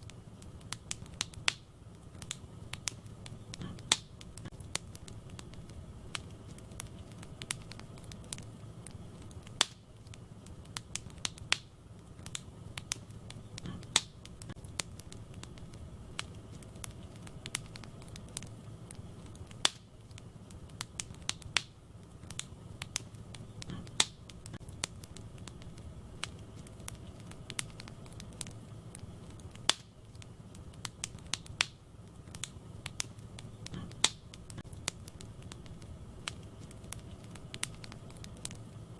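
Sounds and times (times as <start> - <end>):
fire crackling and popping: 0.0 - 38.9
low rumble of flames: 0.0 - 38.9.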